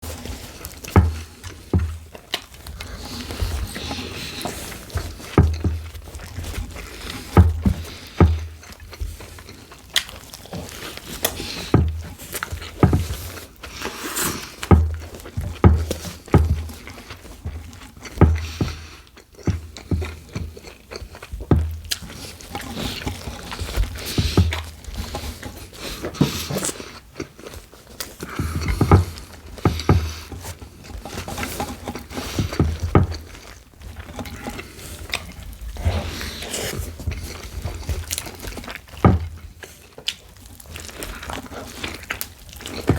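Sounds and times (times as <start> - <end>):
handling noises of food wrapping: 0.0 - 42.9
dull thumps on table: 1.0 - 2.0, 5.4 - 5.9, 7.2 - 8.5, 12.8 - 13.2, 14.7 - 16.8, 28.5 - 30.5.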